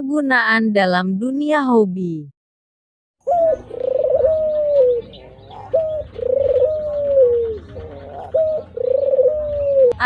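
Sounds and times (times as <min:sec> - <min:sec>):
dove cooing: 0:03.2 - 0:10.0.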